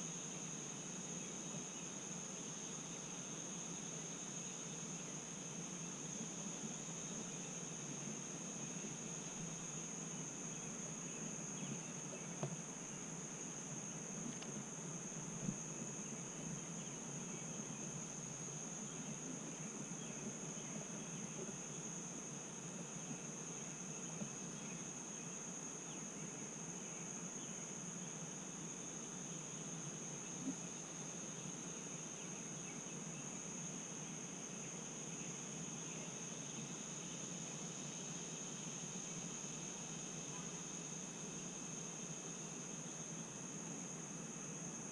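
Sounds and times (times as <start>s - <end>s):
insect chorus drone: 0.0s - 44.9s
soft background hiss: 0.0s - 44.9s
faint ticks: 14.2s - 14.7s.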